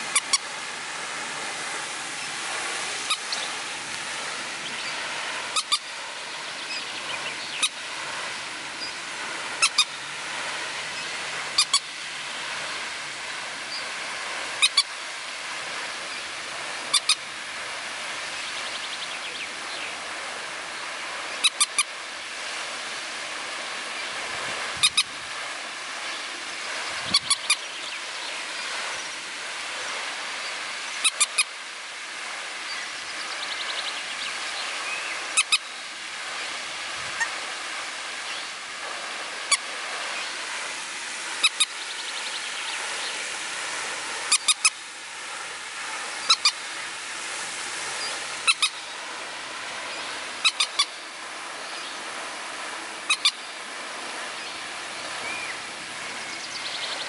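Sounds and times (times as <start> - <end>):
steady outdoor hiss: 0.0 - 57.0.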